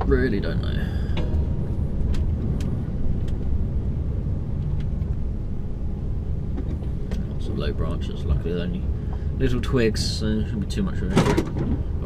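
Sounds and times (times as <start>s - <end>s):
lorry engine and road rumble: 0.0s - 12.0s.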